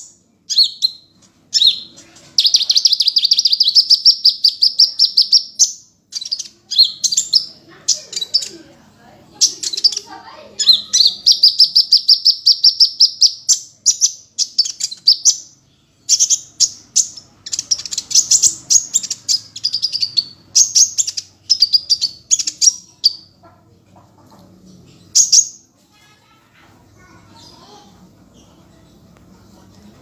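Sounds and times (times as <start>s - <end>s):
bird chirping and trilling: 0.0s - 8.7s, 9.3s - 23.6s, 24.7s - 25.7s.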